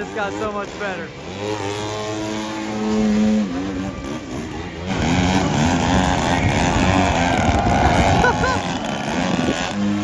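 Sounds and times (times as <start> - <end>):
monster truck engine revving: 0.0 - 10.0.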